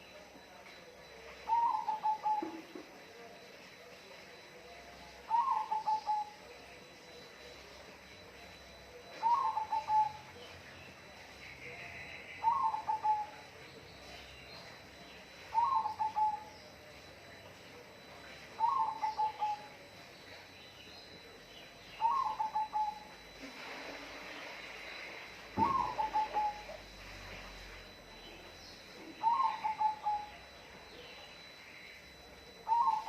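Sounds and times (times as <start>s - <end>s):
dove cooing: 0.0s - 3.3s, 5.2s - 6.6s, 8.4s - 10.4s, 11.6s - 17.4s, 18.6s - 19.9s, 21.9s - 24.2s, 24.9s - 33.0s.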